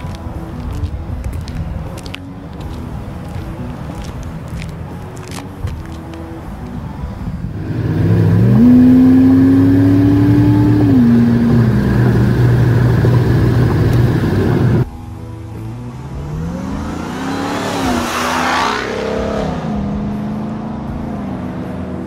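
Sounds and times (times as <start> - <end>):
car engine revving: 7.4 - 14.9, 15.5 - 22.0.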